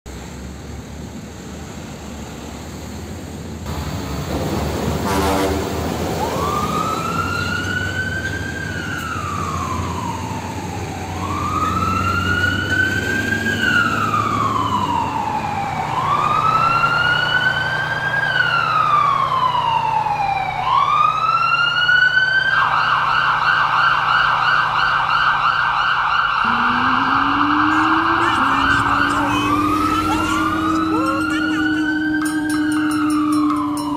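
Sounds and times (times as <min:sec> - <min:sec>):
police siren wailing and yelping: 0:06.1 - 0:33.9
low vehicle engine hum: 0:26.3 - 0:33.9.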